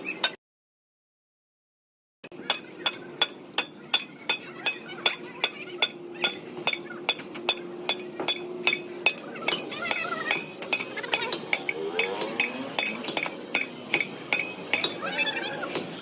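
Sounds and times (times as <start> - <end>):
hammer striking metal: 2.4 - 15.0.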